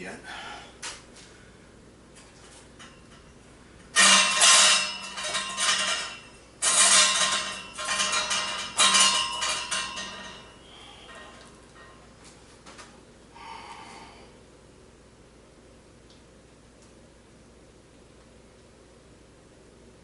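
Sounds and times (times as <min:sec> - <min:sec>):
metallic clattering and scraping: 0:04.0 - 0:12.1.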